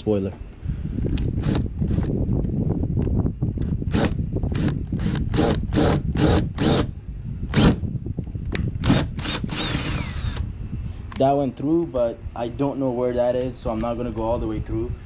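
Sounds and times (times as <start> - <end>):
power drill grinding bursts: 5.0 - 6.9, 8.8 - 10.4.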